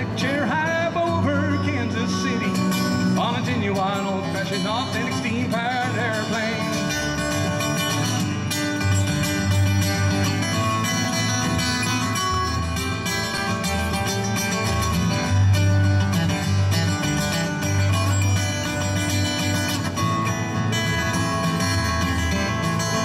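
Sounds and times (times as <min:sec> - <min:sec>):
acoustic bluegrass band instrumental: 0:00.0 - 0:23.0.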